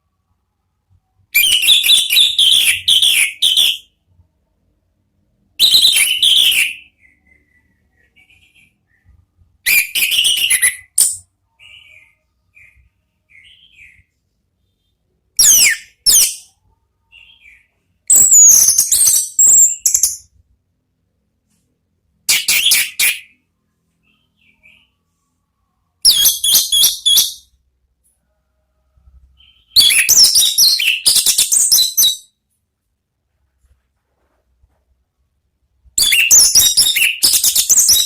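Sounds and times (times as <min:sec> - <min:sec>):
thrush singing whistles and trills: 0:26.0 - 0:27.5, 0:29.4 - 0:32.3, 0:36.0 - 0:38.0.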